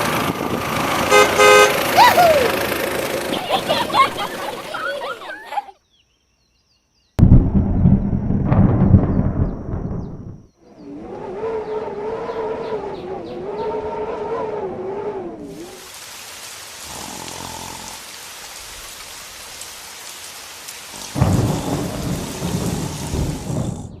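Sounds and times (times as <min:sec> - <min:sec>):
heavy rain hissing: 0:00.8 - 0:05.7, 0:15.4 - 0:24.0
loud thunder rumble: 0:07.2 - 0:12.8, 0:21.0 - 0:24.0.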